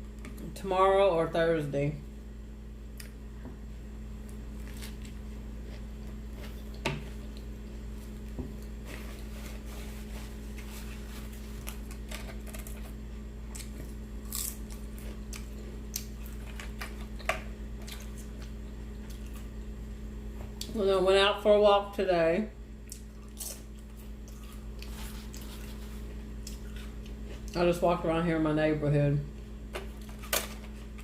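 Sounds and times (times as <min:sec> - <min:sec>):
low electrical hum: 0:00.0 - 0:31.0
person chewing: 0:04.3 - 0:19.6, 0:22.8 - 0:27.6.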